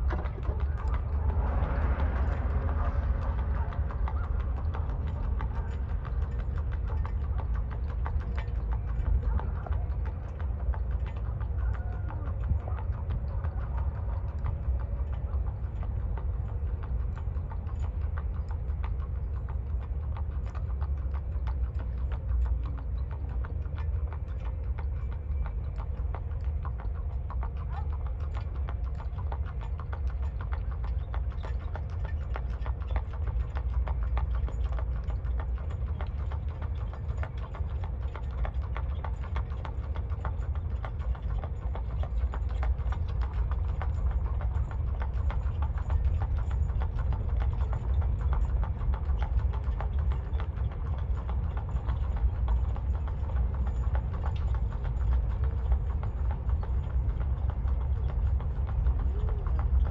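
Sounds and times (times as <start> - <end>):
hooves clip-clopping: 0.0 - 59.9
steady low rumble: 0.0 - 59.9.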